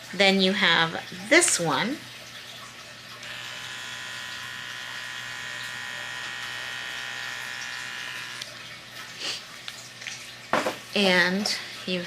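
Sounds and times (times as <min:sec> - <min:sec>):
hair trimmer whine: 0:03.2 - 0:08.5.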